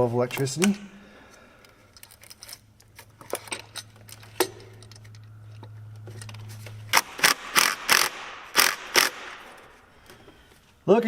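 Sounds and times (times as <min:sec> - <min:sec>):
ratchet wrench cranking: 0:06.9 - 0:09.3.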